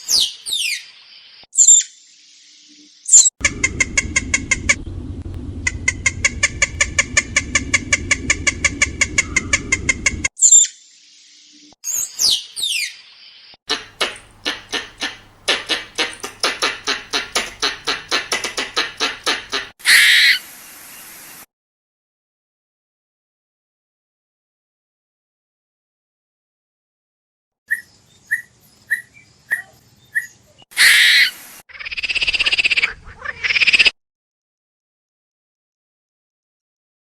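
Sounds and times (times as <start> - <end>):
harsh squirrel call burst: 13.7 - 20.4, 30.7 - 33.9
squirrel chattering chirps: 13.7 - 20.4
squirrel downward-sweeping call: 13.7 - 20.4, 27.7 - 33.9.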